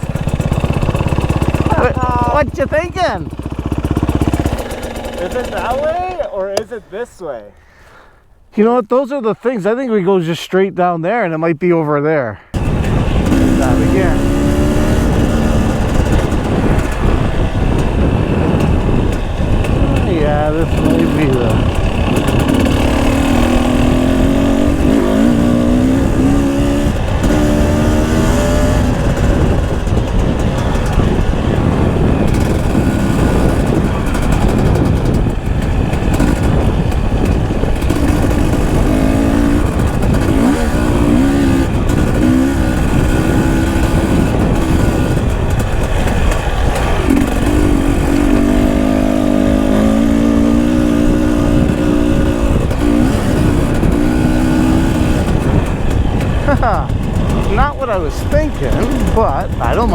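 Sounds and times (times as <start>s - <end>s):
dirt bike engine: 0.0s - 9.2s, 12.4s - 59.9s
wind on microphone: 12.6s - 59.9s.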